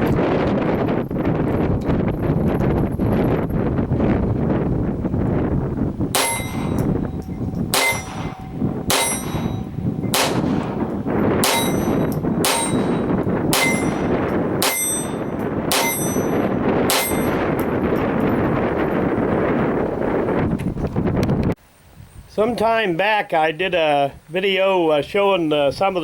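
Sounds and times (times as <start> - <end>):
wind noise: 0.0 - 23.0, 23.6 - 26.0
metallic ring: 6.2 - 18.4
pistol shots: 7.7 - 17.4.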